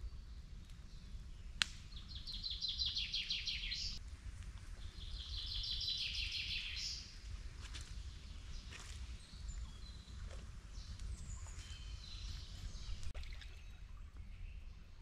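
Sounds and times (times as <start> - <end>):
sharp crack: 1.6 - 1.9.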